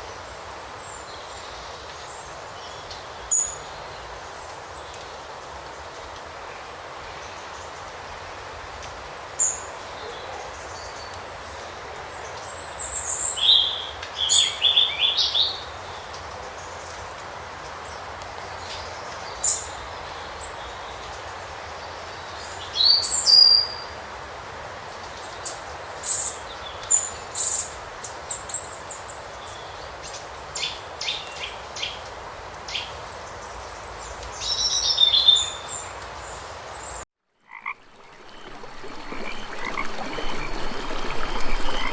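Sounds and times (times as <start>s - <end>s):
birds chirping: 37.5s - 41.9s.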